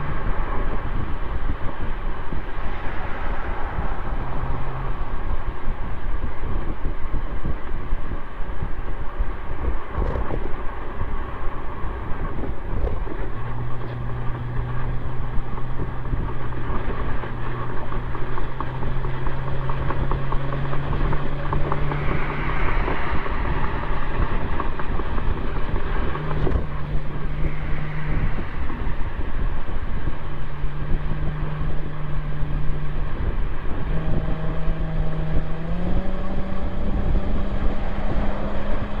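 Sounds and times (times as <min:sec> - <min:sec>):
car exhaust hum: 0:00.0 - 0:39.0
road rumble: 0:00.0 - 0:39.0
wind: 0:00.0 - 0:39.0.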